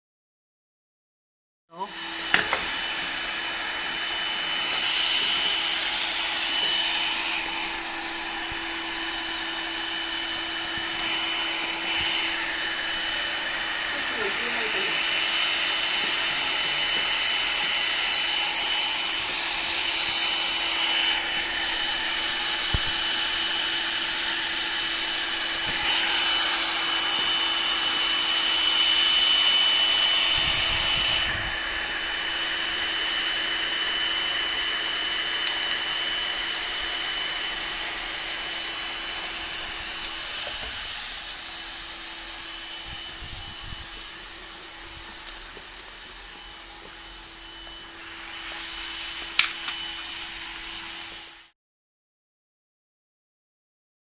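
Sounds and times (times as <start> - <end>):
welding machine running: 9.4 - 47.8, 48.4 - 50.0.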